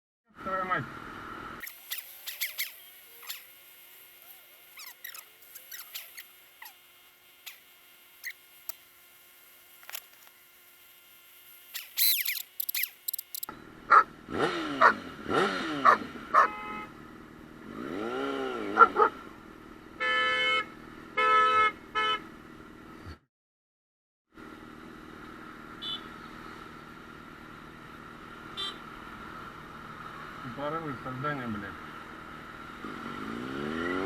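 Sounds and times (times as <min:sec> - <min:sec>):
motorcycle engine revving: 0:01.0 - 0:10.0, 0:11.6 - 0:19.6, 0:31.8 - 0:34.0
faint clicks: 0:11.8 - 0:13.5
vehicle horn honking: 0:16.4 - 0:17.0, 0:20.0 - 0:22.2, 0:28.6 - 0:28.8.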